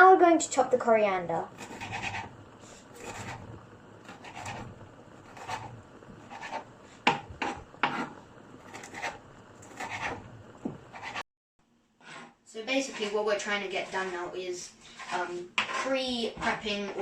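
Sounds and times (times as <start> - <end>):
knife chopping on chopping board: 6.3 - 11.2.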